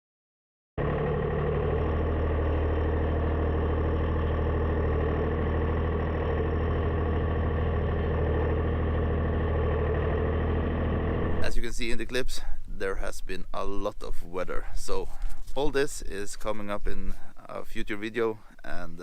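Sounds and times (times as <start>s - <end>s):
tractor diesel engine running: 0.8s - 11.9s.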